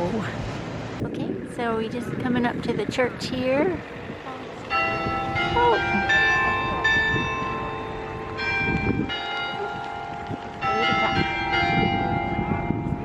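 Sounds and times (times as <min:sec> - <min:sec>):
church bells ringing: 0:04.4 - 0:13.0.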